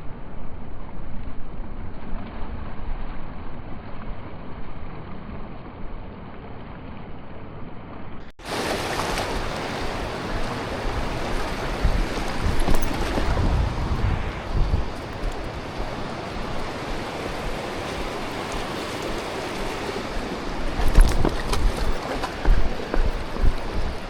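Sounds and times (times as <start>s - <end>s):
river current rushing: 8.4s - 24.0s
wind buffeting microphone: 8.8s - 24.0s.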